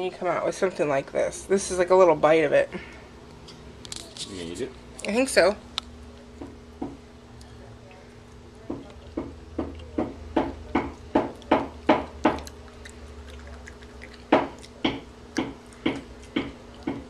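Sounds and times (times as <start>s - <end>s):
wet chewing mouth smacks: 11.0s - 17.0s.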